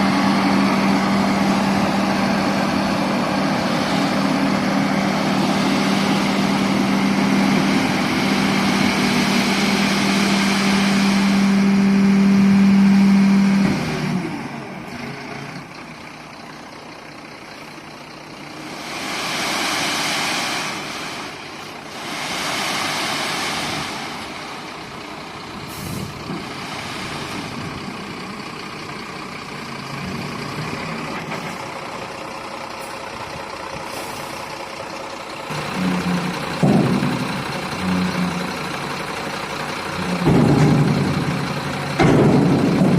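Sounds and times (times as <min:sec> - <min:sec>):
diesel engine drone: 0:00.0 - 0:42.9
rushing hissing sound: 0:18.7 - 0:24.5.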